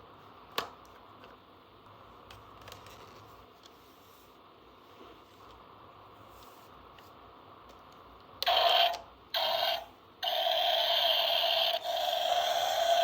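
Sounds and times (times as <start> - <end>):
toy screwdriver motor whirring: 8.4 - 13.0.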